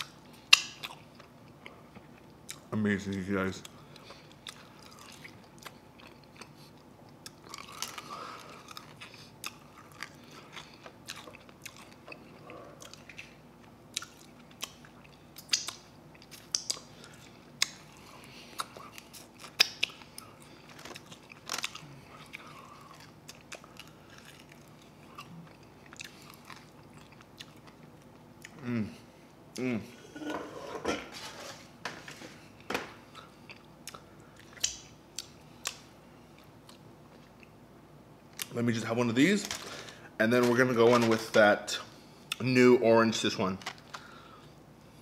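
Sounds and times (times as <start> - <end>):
chewing and lip smacking: 3.6 - 28.6, 33.1 - 37.6.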